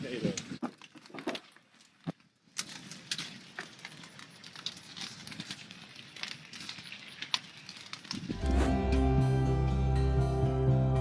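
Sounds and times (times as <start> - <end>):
bonfire crackling and popping: 0.0 - 10.3
fire hissing: 2.6 - 9.5.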